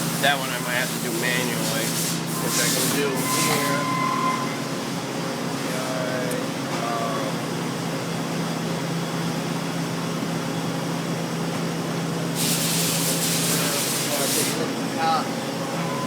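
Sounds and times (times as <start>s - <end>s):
cnc machine humming: 0.0s - 11.2s, 14.6s - 16.0s
loud hiss: 12.4s - 14.6s.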